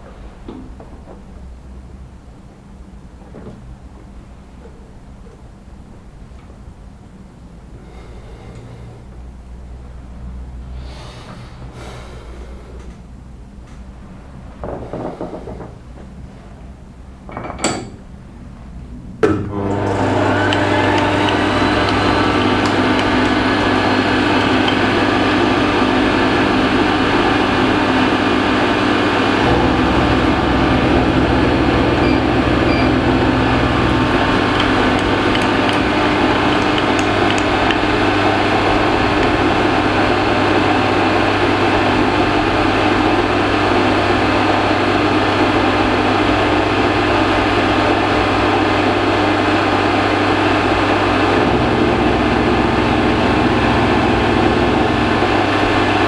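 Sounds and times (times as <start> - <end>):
electric machine tool humming: 19.5 - 56.0.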